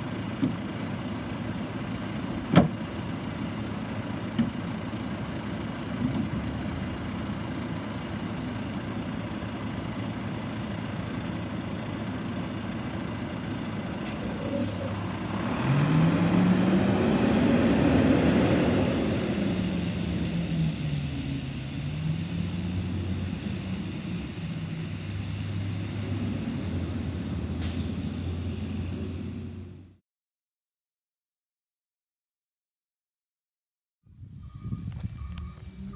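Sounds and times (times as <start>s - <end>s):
truck engine revving: 13.8s - 29.9s.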